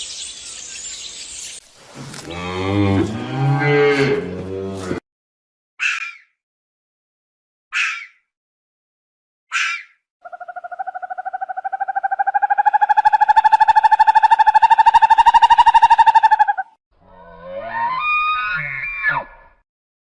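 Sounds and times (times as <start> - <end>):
animal trilling call: 9.5 - 16.8.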